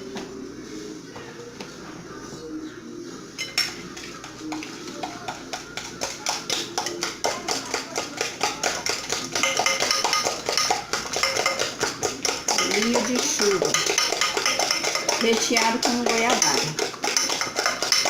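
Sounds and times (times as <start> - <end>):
utensil beating eggs in a bowl: 3.4 - 18.0.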